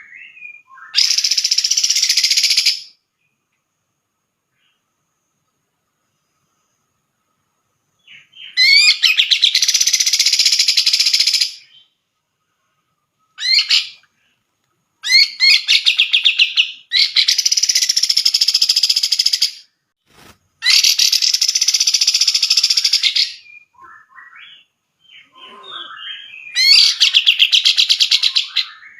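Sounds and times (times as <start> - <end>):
bird chattering song: 0.0 - 3.0, 8.0 - 12.0, 13.4 - 14.1, 15.0 - 19.7, 20.6 - 28.9.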